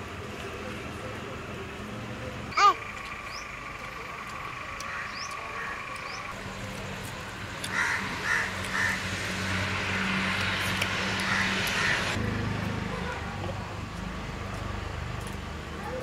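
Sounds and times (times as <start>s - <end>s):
harsh bird calls: 4.8s - 6.4s.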